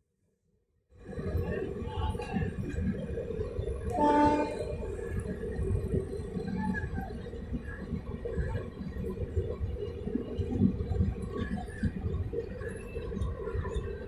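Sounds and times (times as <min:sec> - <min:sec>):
train coaches rumbling on track: 0:01.0 - 0:14.0.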